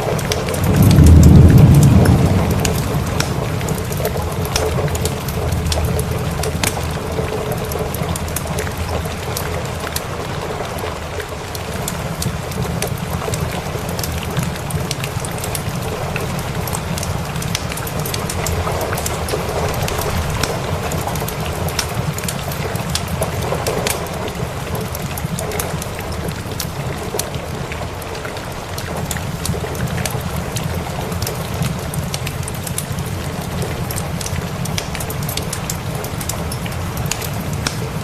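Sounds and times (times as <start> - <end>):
steady rain hiss: 0.0 - 38.0
wood fire crackling: 0.0 - 38.0
steady low rumble: 0.6 - 6.2.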